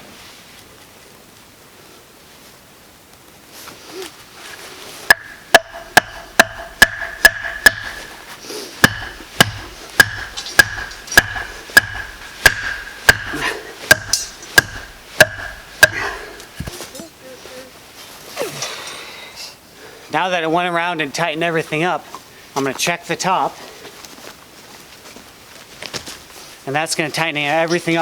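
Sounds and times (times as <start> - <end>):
hammer blows with ringing tone: 5.1 - 16.5.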